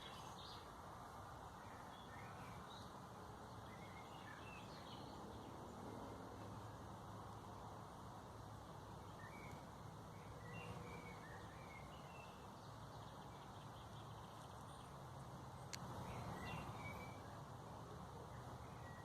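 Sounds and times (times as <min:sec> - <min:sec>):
faint bird chirps: 0:09.0 - 0:19.0.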